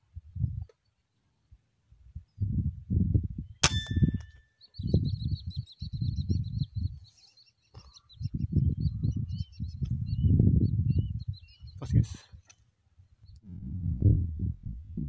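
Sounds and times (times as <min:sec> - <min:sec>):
wind rumbling on microphone: 0:00.0 - 0:00.8, 0:01.9 - 0:07.1, 0:08.0 - 0:12.4, 0:13.0 - 0:15.0
bird chirping: 0:03.4 - 0:13.5.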